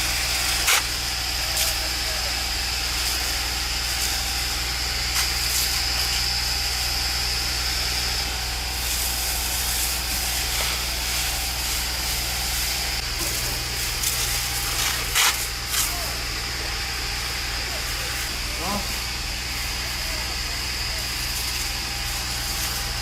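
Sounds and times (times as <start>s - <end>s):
fire engine humming: 0.0s - 23.0s
hose spraying water: 0.0s - 23.0s.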